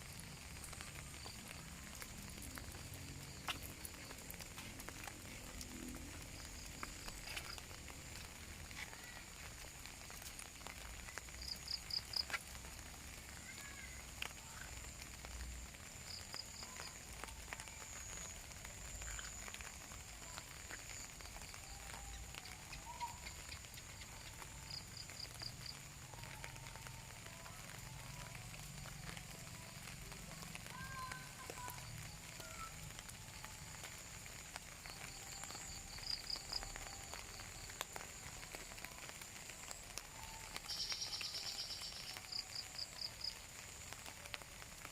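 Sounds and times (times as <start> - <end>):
water drips: 0.0 - 27.0
light rain falling: 0.0 - 44.9.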